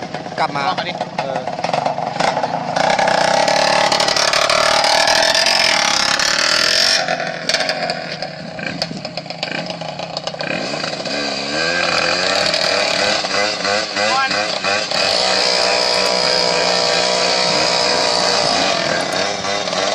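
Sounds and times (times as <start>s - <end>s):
small motorcycle engine revving: 0.0s - 19.9s.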